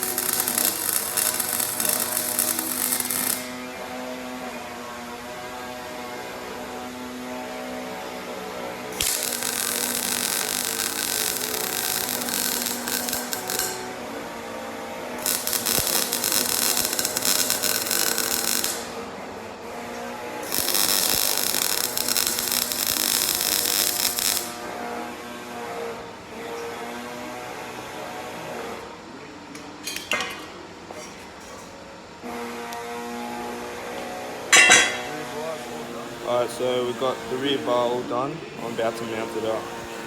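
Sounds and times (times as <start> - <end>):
power tool whining on steel: 0.0 - 27.6.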